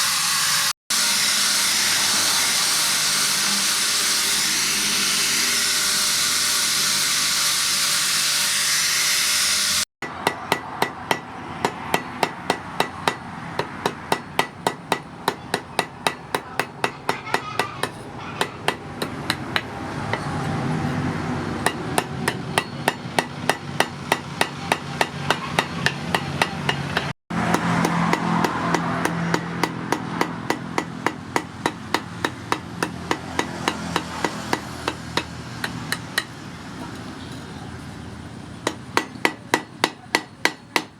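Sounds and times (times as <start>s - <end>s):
hammer ringing on steel: 10.0s - 20.4s, 21.6s - 36.4s.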